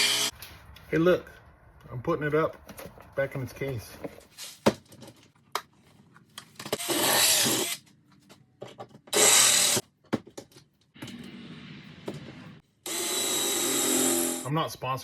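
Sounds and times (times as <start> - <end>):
harsh rasping tool noise: 6.7 - 7.8, 9.1 - 9.8, 12.8 - 14.5.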